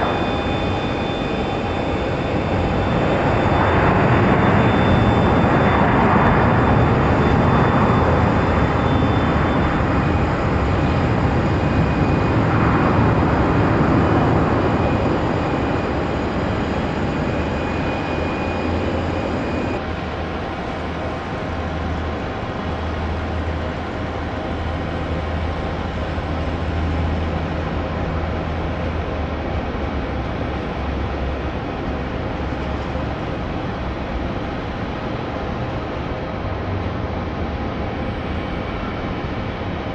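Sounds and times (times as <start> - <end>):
steady low rumble: 0.0 - 20.5
high-pitched fan whine: 0.0 - 39.9
jet engines passing: 0.0 - 39.9.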